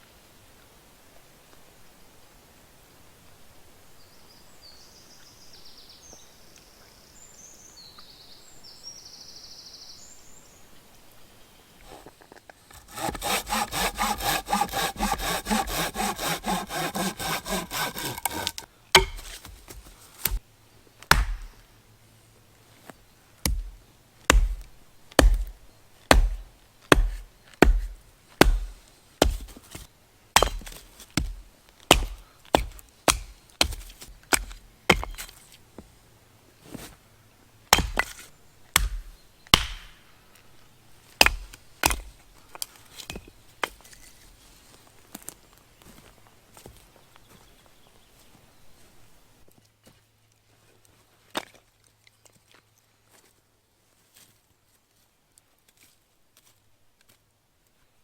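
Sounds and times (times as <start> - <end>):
hand saw cutting wood: 12.7 - 20.4, 26.1 - 29.8, 30.4 - 35.4, 41.2 - 42.1
wood chopping blows: 12.7 - 20.4, 21.1 - 21.7, 23.5 - 29.8, 30.4 - 35.3, 37.7 - 38.2, 38.8 - 40.1, 41.2 - 42.1.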